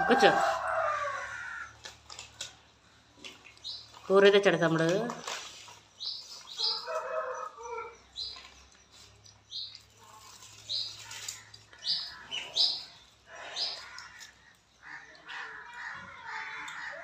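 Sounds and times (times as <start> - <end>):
bird chirping: 2.6 - 17.0.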